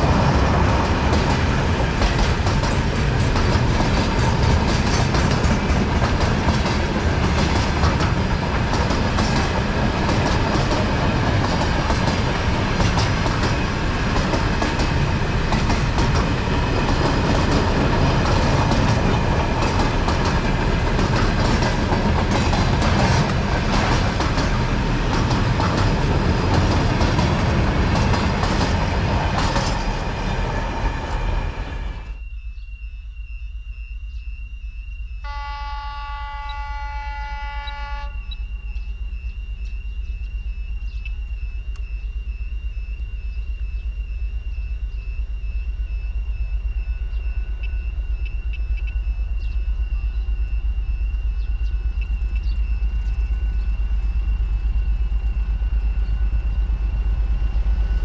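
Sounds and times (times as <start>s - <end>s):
wheels clacking over rail joints: 0.0s - 31.1s
train rumble: 0.0s - 58.0s
faint steady whine: 29.8s - 58.0s.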